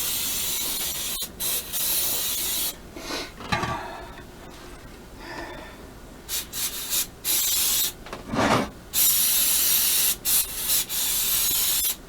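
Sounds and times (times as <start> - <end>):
aerosol can spraying: 0.0 - 2.8, 6.3 - 8.0, 9.0 - 12.0.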